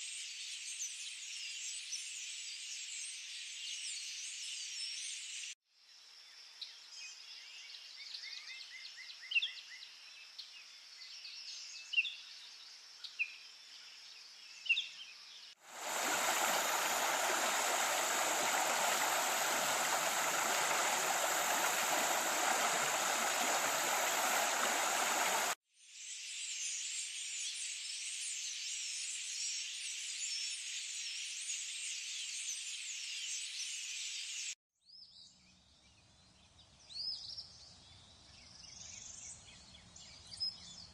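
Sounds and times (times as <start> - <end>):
insect chorus: 15.6 - 25.6
rushing water: 15.6 - 25.6
bird calls: 15.8 - 25.6.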